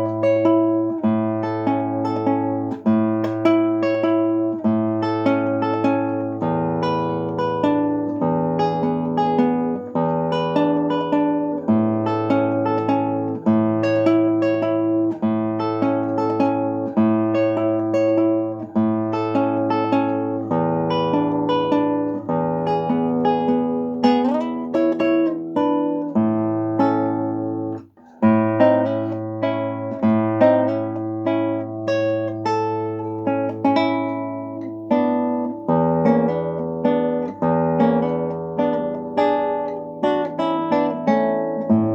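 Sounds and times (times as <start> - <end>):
fingerpicked acoustic guitar: 0.0 - 41.9.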